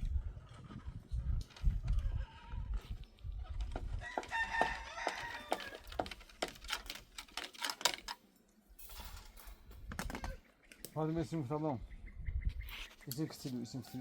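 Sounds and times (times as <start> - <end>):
rooster crowing: 4.0 - 5.9.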